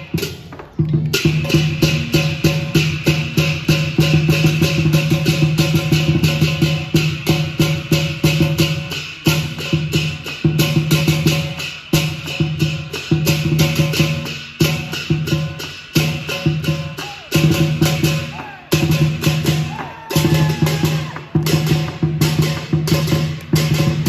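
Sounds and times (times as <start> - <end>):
cymbals clashing: 0.0 - 24.0
big drum beaten fast: 1.2 - 24.0.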